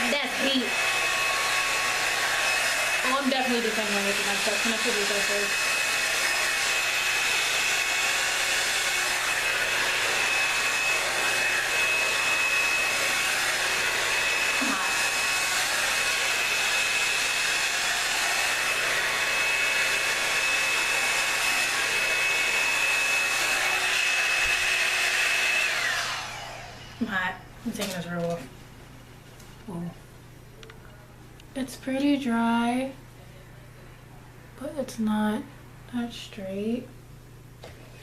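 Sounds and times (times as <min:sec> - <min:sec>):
hot-air brush dryer whining: 0:00.0 - 0:27.4.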